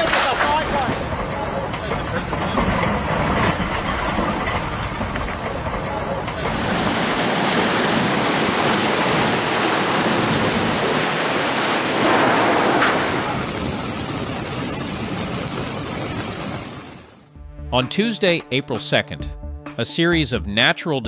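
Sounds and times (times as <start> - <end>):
heavy rain pouring: 0.0 - 2.3, 5.4 - 17.2.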